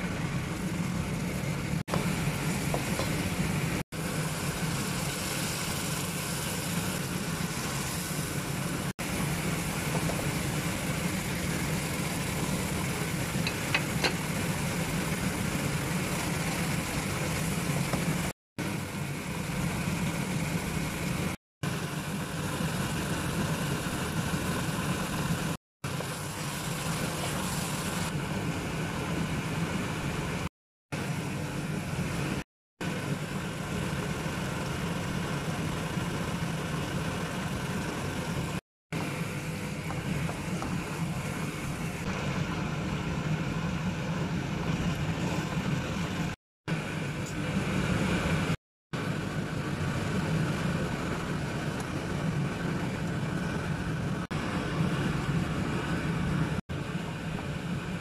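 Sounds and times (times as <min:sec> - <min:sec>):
paste sizzling in wok: 0:02.0 - 0:18.3, 0:25.0 - 0:28.1.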